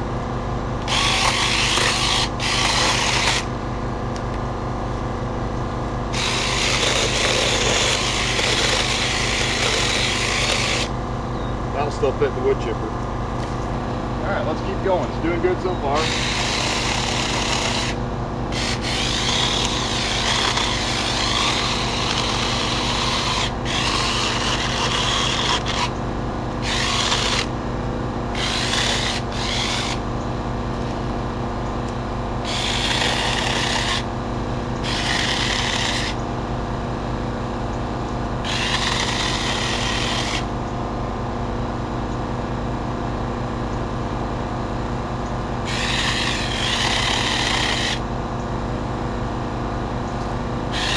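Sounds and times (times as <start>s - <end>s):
steady low hum: 0.0s - 50.9s
electric chainsaw cutting branches: 0.8s - 3.6s, 6.1s - 11.0s, 14.8s - 27.6s, 28.3s - 30.1s, 32.4s - 36.2s, 38.4s - 40.6s, 45.6s - 48.1s, 50.7s - 50.9s.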